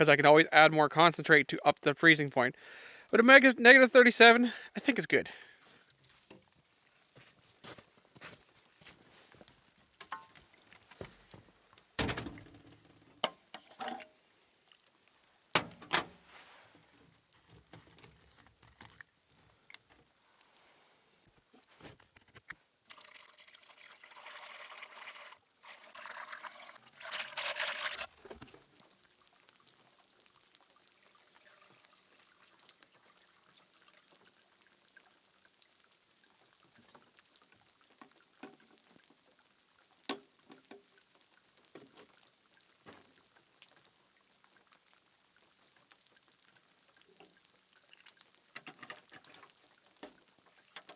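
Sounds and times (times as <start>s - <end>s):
liquid pouring from a jug: 22.7s - 28.8s, 31.0s - 33.6s.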